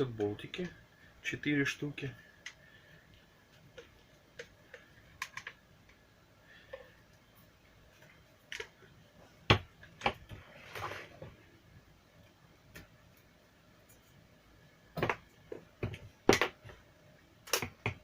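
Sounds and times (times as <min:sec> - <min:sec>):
tools and plastic parts clicking: 0:03.7 - 0:06.0.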